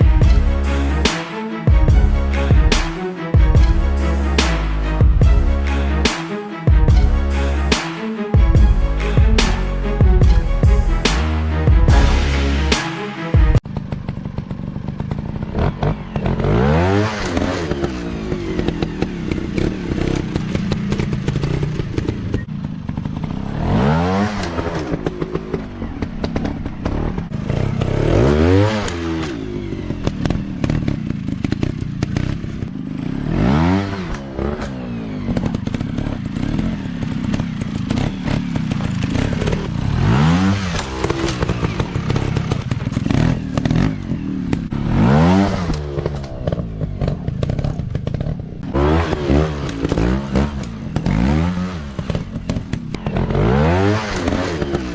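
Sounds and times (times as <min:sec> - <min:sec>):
dirt bike engines revving: 0:13.8 - 0:54.9.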